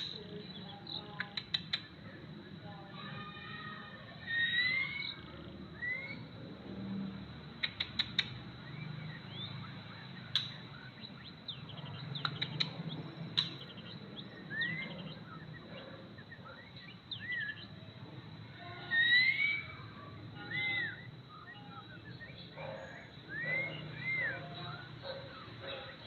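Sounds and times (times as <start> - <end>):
sharp clicks: 0.0 - 2.0, 7.5 - 8.6, 10.2 - 11.1, 11.9 - 14.0
bird whistling gliding notes: 4.0 - 6.4, 7.9 - 18.0, 18.8 - 26.0.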